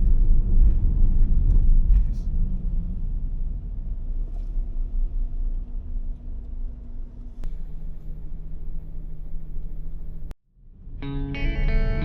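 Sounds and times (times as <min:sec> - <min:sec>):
faint steady hum: 0:07.4 - 0:10.4.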